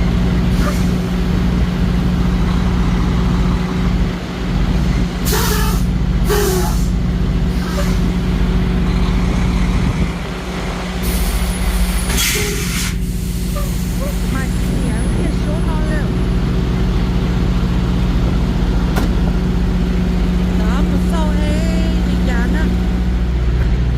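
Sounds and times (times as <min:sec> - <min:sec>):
diesel truck engine running: 0:00.0 - 0:23.9
air brake hisses: 0:05.3 - 0:08.0, 0:11.0 - 0:14.1.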